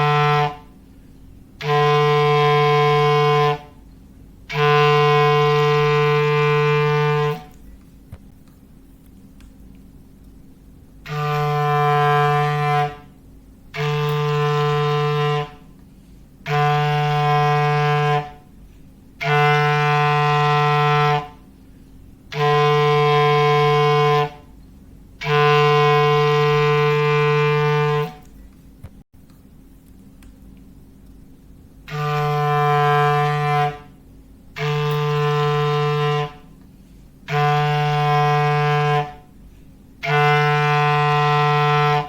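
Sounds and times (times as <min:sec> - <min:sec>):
clarinet low held note: 0:00.0 - 0:00.8, 0:01.6 - 0:03.8, 0:04.5 - 0:07.6, 0:11.0 - 0:15.8, 0:16.4 - 0:18.6, 0:19.2 - 0:21.5, 0:22.3 - 0:24.6, 0:25.2 - 0:28.3, 0:31.9 - 0:34.0, 0:34.6 - 0:36.6, 0:37.3 - 0:39.4, 0:40.0 - 0:42.0.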